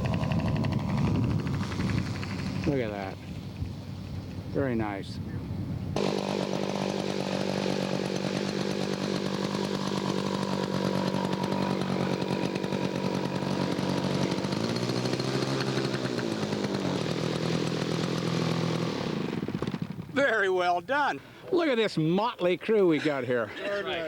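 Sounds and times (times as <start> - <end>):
model airplane engine running: 0.0 - 3.6, 6.0 - 20.1.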